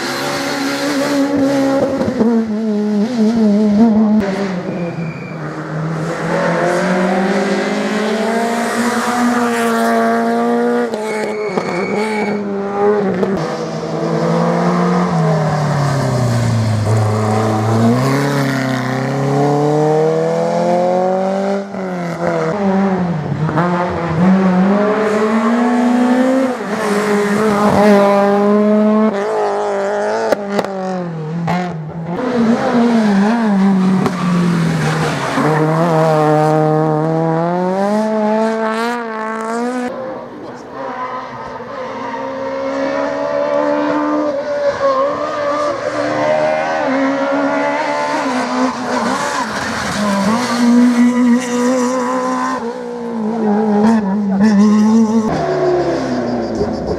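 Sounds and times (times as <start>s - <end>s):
rally car engines revving: 0.0s - 56.9s.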